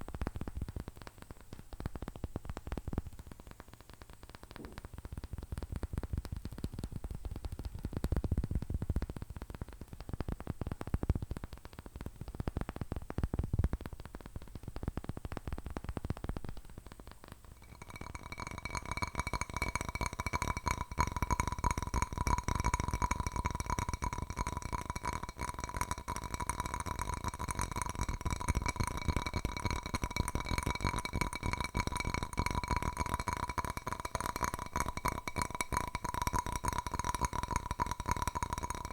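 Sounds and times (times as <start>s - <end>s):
nail taps on ringing object: 17.6s - 38.9s.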